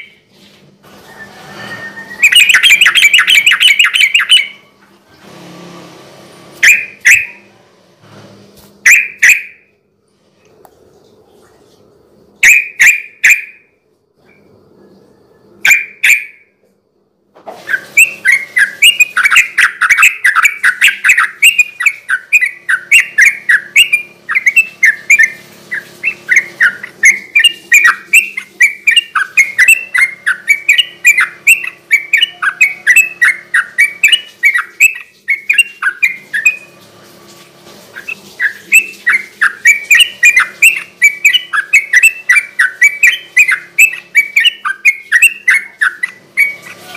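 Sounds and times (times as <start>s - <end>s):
bird singing chattering song: 1.8s - 4.7s, 6.6s - 7.5s, 8.9s - 9.6s, 12.4s - 13.6s, 15.0s - 16.4s, 17.7s - 36.8s, 38.0s - 46.9s.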